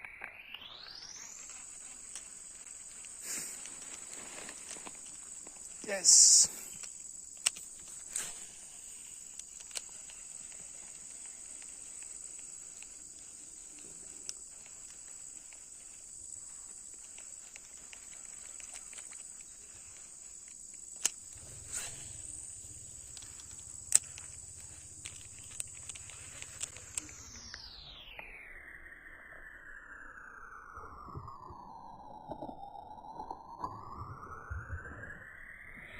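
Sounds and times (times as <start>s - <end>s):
insects trilling: 0.4s - 35.9s
sharp clicks and ticks: 5.5s - 8.0s, 9.0s - 15.7s, 16.9s - 27.7s.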